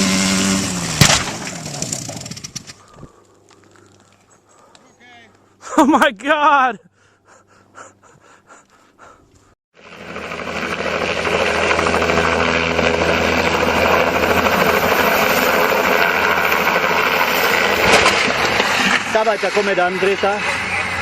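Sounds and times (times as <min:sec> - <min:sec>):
aircraft engine roaring: 0:09.8 - 0:21.0.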